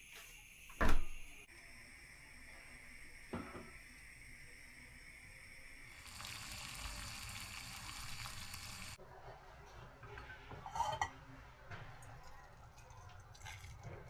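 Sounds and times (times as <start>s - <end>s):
food sizzling in a frying pan: 1.5s - 9.0s.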